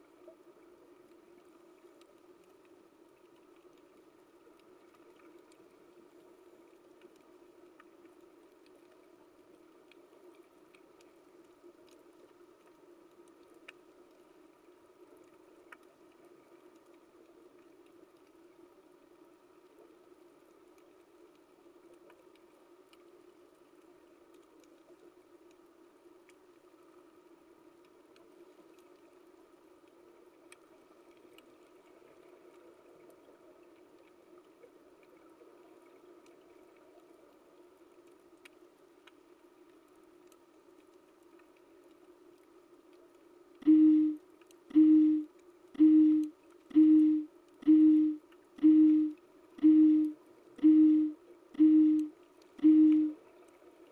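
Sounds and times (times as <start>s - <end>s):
faint underwater hum: 0.0s - 53.9s
low electronic alarm beeping: 43.6s - 53.2s.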